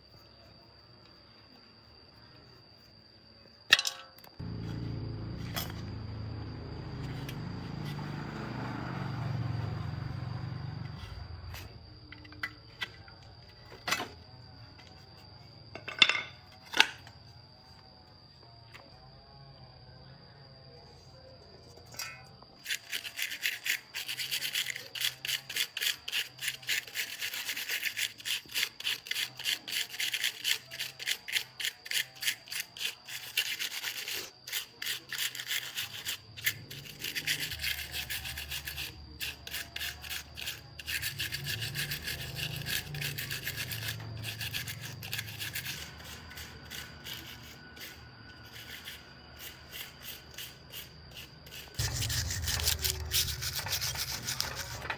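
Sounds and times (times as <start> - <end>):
low hum: 3.9 - 12.6, 51.8 - 54.9
hand sanding strokes: 51.5 - 54.9.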